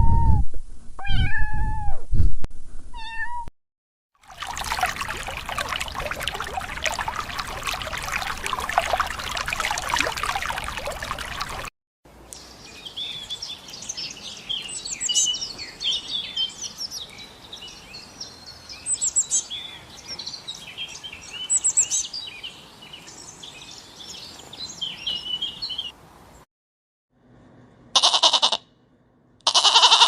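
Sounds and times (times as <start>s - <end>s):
birds chirping: 4.4s - 11.7s.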